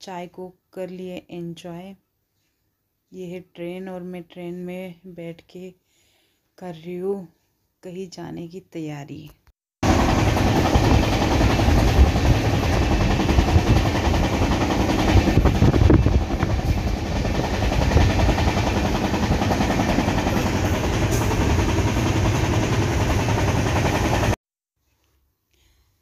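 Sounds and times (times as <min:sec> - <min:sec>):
train wheels rumbling and rattling: 0:09.8 - 0:24.4.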